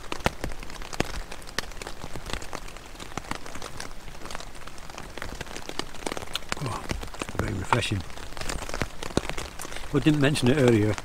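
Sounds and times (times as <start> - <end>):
heavy rain on tent fabric: 0.0 - 11.0.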